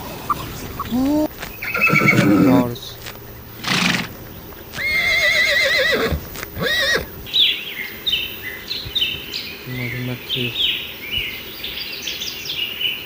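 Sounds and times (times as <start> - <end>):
horse snorting: 0.0 - 2.8, 3.6 - 7.1
horse whinnying: 1.6 - 2.7, 3.6 - 4.1, 4.8 - 7.1.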